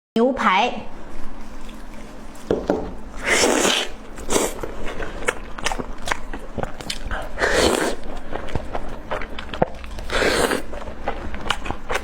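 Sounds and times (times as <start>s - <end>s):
chewing with wet mouth clicks: 4.2s - 12.0s.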